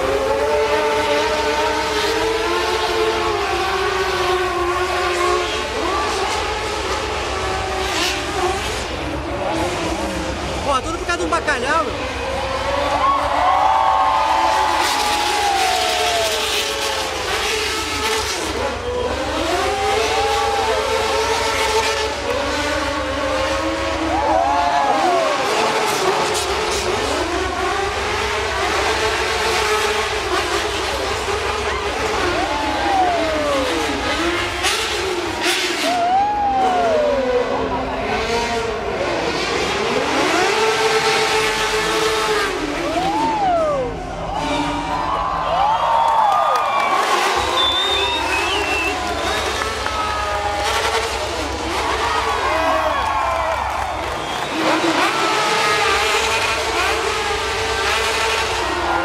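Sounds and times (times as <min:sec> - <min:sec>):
vehicle engine revving: 0:00.0 - 0:13.4, 0:14.0 - 0:45.2, 0:45.9 - 0:59.0.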